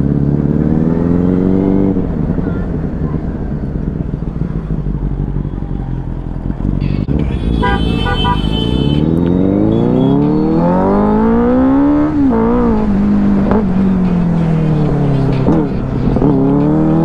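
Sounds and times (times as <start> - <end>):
motorcycle engine revving: 0.0 - 17.0
vehicle horn toots: 6.9 - 10.8.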